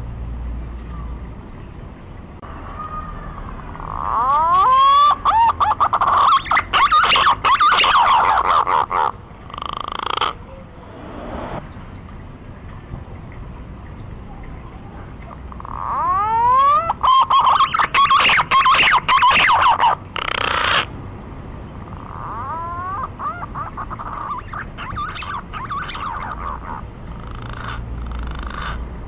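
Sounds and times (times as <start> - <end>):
whistled bird lure call: 5.6 - 8.4, 16.2 - 20.8, 23.0 - 26.8.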